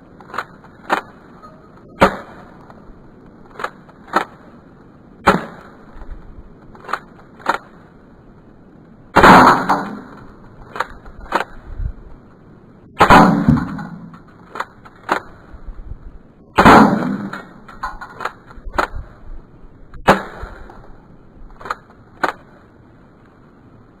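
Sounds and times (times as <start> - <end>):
airsoft pistol shots: 2.0 - 2.5, 5.2 - 5.8, 9.2 - 11.5, 13.0 - 14.1, 16.6 - 17.6, 20.0 - 20.8.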